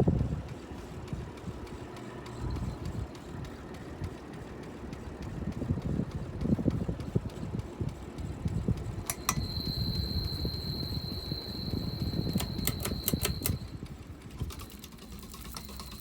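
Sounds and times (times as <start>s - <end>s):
ceiling fan rumbling: 0.0s - 16.0s
sharp clicks: 9.1s - 13.7s
thin high-pitched tone: 9.1s - 13.7s.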